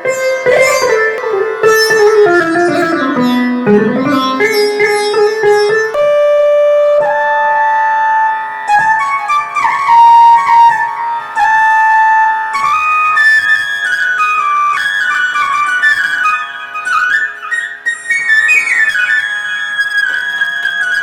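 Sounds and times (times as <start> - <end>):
plucked sitar notes: 0.0 - 21.0
keyboard flute melody: 0.1 - 13.4.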